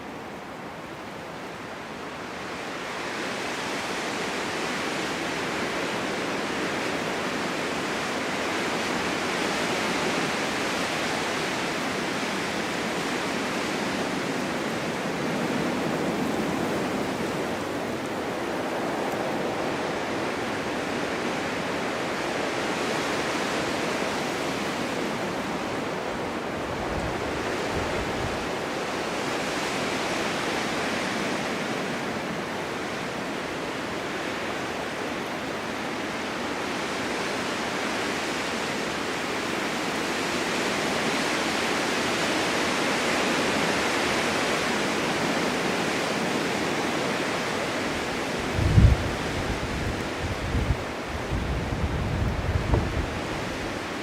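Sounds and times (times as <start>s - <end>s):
wind blowing: 3.0s - 35.8s, 44.0s - 54.0s
wind buffeting the microphone: 8.2s - 35.5s, 45.1s - 54.0s.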